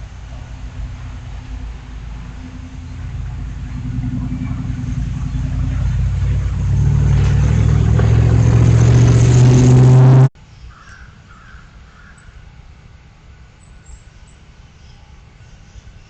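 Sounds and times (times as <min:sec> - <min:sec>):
vehicle engine approaching: 0:00.0 - 0:10.4
faint bird calls: 0:10.5 - 0:12.5.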